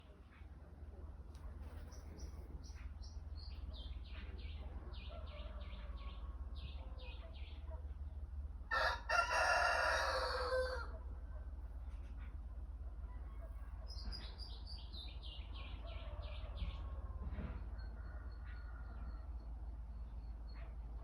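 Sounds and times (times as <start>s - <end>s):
songbird chirping: 0.0s - 21.0s
rooster crowing: 8.7s - 11.0s.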